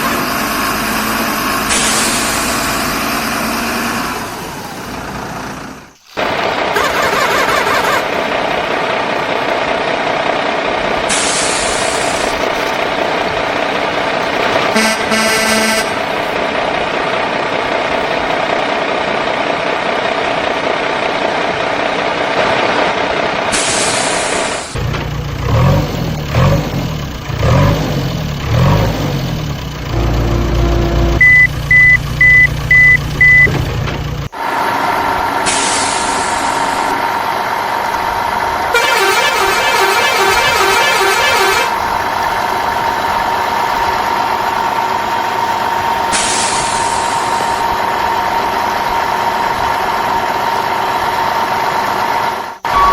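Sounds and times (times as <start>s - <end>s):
vehicle engine running: 0.0s - 52.9s
hiss: 1.7s - 2.9s, 11.1s - 12.4s, 23.5s - 24.8s, 35.4s - 37.1s, 46.1s - 47.6s
reversing alarm beeping: 30.4s - 33.6s, 52.6s - 52.9s.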